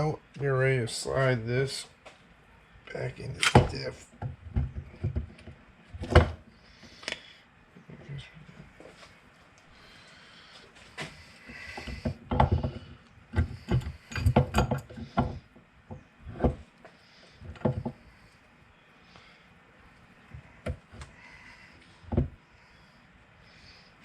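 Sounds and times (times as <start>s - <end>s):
heavy metal clunks and knocks: 11.8s - 16.6s.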